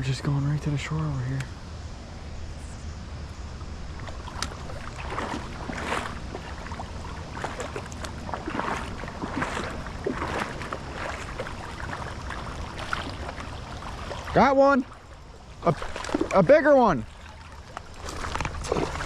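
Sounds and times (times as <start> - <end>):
steady low rumble: 0.0 - 14.4
water splashing from wading: 3.9 - 19.0.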